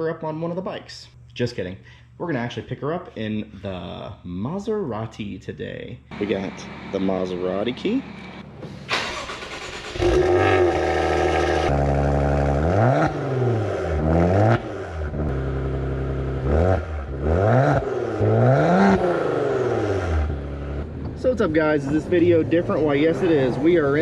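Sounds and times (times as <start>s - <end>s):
car engine starting and revving: 6.1s - 24.0s.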